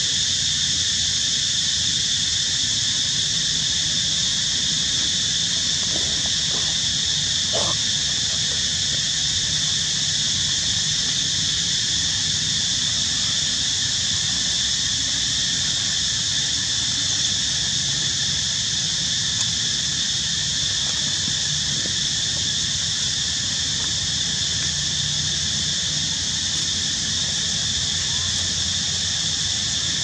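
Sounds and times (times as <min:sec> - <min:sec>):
insect chorus drone: 0:00.0 - 0:30.0.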